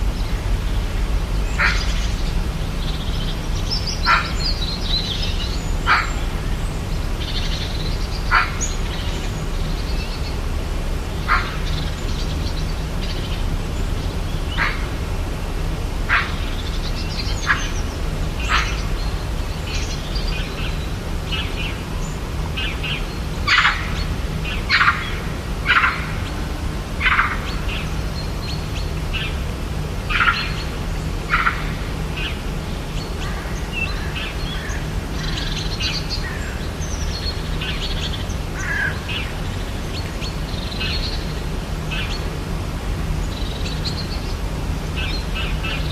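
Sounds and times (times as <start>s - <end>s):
steady low rumble: 0.0s - 45.9s
bird calls and chirps: 0.2s - 10.4s, 11.1s - 15.1s, 16.1s - 26.4s, 27.0s - 42.4s, 43.0s - 45.9s.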